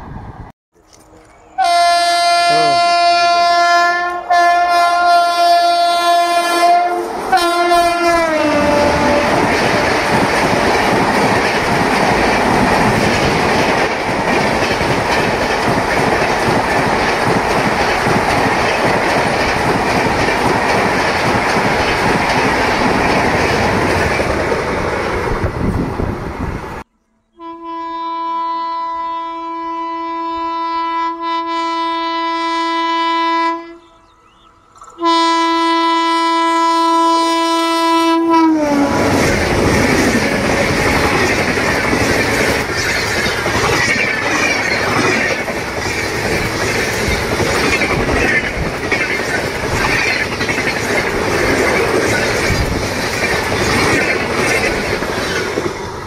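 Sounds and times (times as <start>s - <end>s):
train horn blasts: 1.6s - 9.4s, 27.1s - 34.0s, 35.0s - 39.4s
train rushing past: 1.6s - 26.8s, 38.1s - 56.0s.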